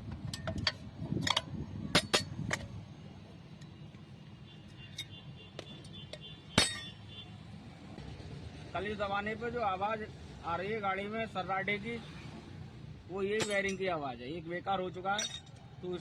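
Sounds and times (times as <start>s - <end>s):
metal tools clinking and knocking: 0.1s - 2.8s, 4.9s - 7.0s, 13.3s - 13.9s, 15.0s - 15.7s.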